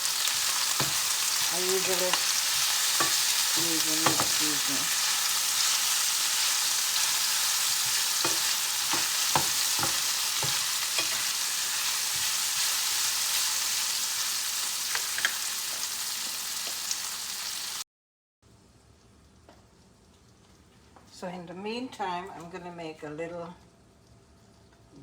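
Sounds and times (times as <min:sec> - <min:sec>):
vegetables sizzling in a frying pan: 0:00.0 - 0:17.8.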